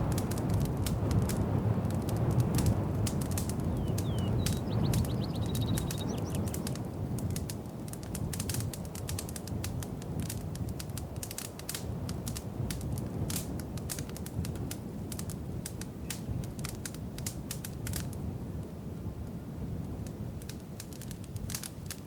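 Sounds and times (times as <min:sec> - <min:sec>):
wood fire crackling: 0:00.0 - 0:22.0
bird trilling: 0:03.8 - 0:06.5.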